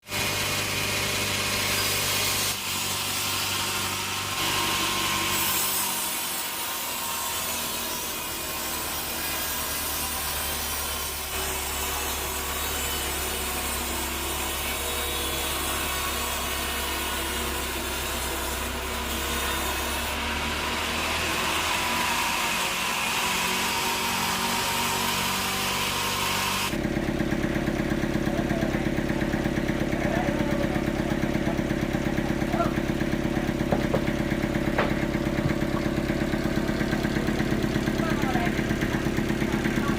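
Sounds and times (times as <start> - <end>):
bandsaw blade cutting log: 0.0 - 39.9
engine running with fast pulse: 23.6 - 39.9.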